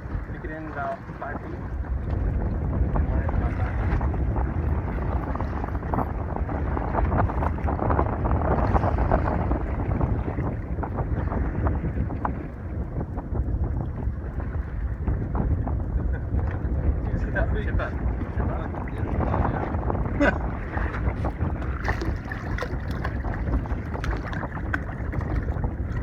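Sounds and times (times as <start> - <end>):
water rushing: 0.0 - 1.7, 20.4 - 26.0
wind buffeting microphone: 0.0 - 26.0.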